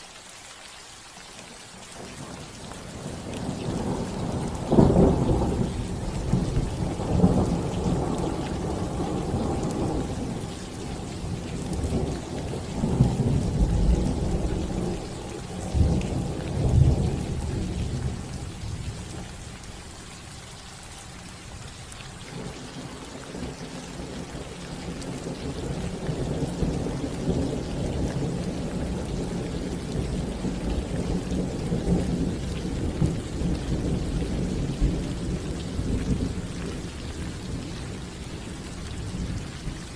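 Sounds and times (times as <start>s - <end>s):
rain on a roof: 0.0s - 39.9s
rolling thunder: 3.0s - 19.3s, 23.3s - 38.1s.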